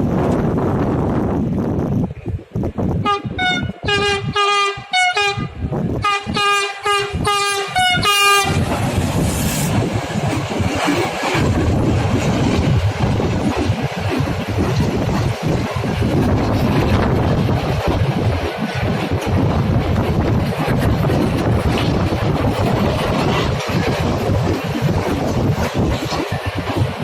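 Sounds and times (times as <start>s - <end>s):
train rumbling past: 0.0s - 27.0s
train horn toots: 3.0s - 8.6s.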